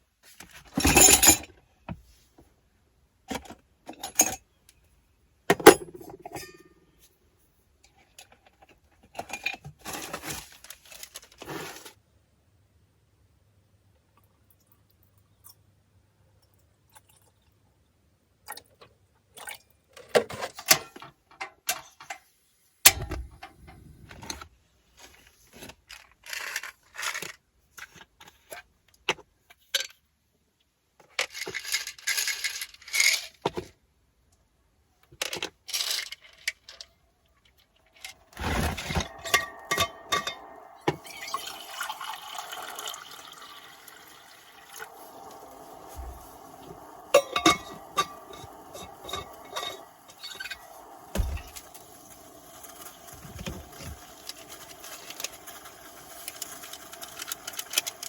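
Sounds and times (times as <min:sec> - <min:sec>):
clinks of containers handled: 0:38.0 - 0:41.5, 0:44.7 - 0:51.8
liquid being poured: 0:38.3 - 0:57.6.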